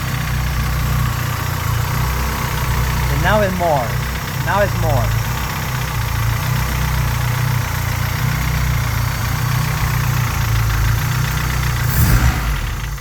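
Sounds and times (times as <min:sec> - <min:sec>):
engine idling with rapid knocking: 0:00.0 - 0:13.0.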